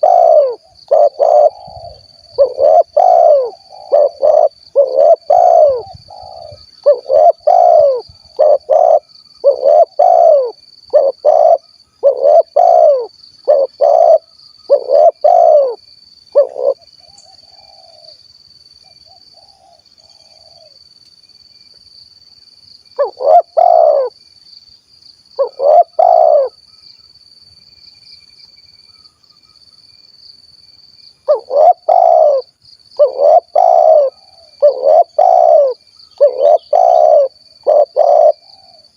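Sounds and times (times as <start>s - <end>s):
dove cooing: 0.0s - 18.2s, 19.4s - 20.8s, 23.0s - 24.1s, 25.4s - 26.6s, 31.3s - 38.9s.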